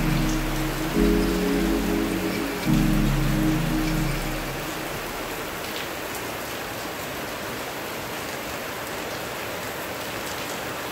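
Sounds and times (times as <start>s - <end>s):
water drips: 0.0s - 6.4s
steady rain falling: 0.0s - 10.9s.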